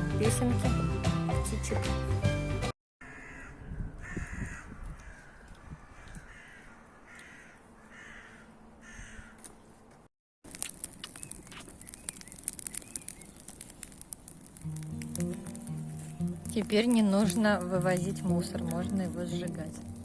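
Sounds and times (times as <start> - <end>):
crow cawing: 3.0 - 9.6
sharp clicks and crackles: 10.4 - 20.0.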